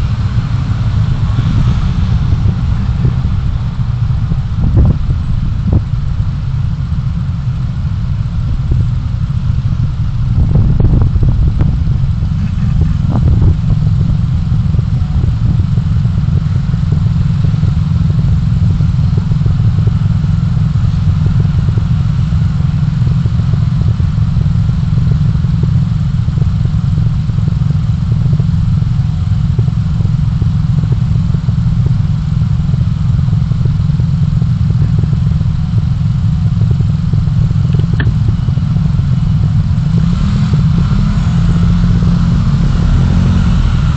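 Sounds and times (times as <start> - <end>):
road noise: 0.0 - 43.9
vehicle engine rumble: 0.0 - 43.9.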